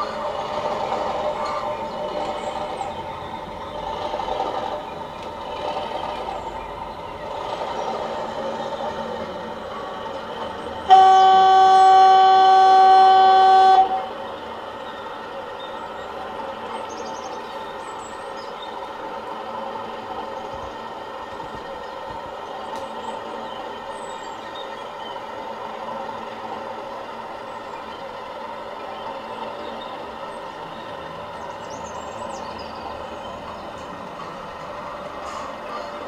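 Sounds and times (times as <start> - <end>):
model locomotive diesel engine sound: 0.0 - 36.0
locomotive horn blast: 10.8 - 14.2.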